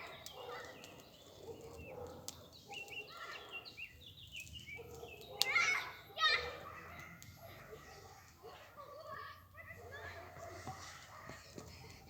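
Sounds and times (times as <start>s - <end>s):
birds chirping: 0.0s - 9.1s.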